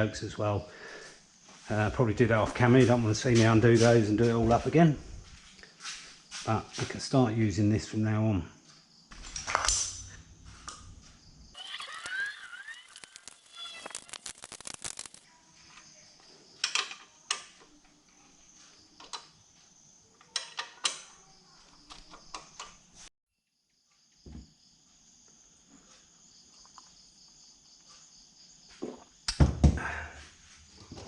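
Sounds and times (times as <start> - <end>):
tools and metal parts clinking: 9.1 - 11.0, 16.6 - 17.5, 20.2 - 21.1.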